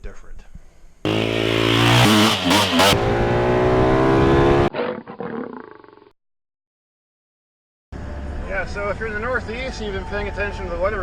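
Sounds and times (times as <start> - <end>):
car engine revving high: 1.1 - 4.7.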